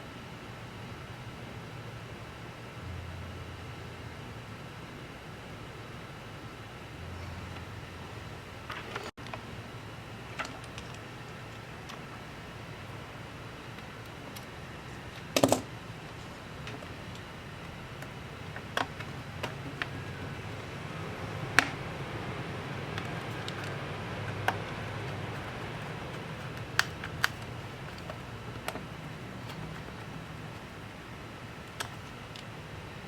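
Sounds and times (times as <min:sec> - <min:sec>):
low steady hum: 0:00.0 - 0:33.0
rattling of parts: 0:22.8 - 0:32.5.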